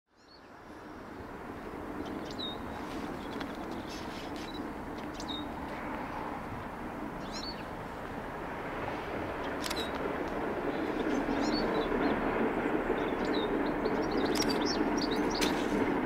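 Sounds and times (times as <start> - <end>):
distant rumble: 0.7 - 16.0
birds chirping short calls: 9.4 - 10.0.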